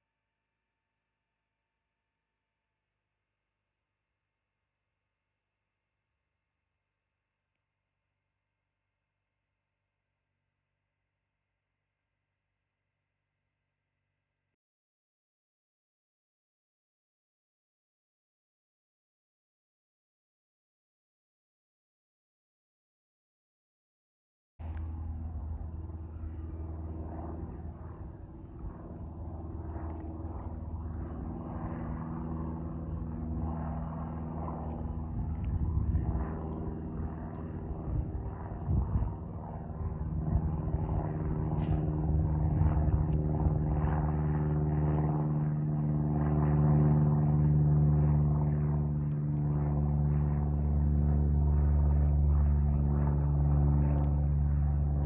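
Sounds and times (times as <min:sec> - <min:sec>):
aircraft engine drone: 0:24.6 - 0:55.0.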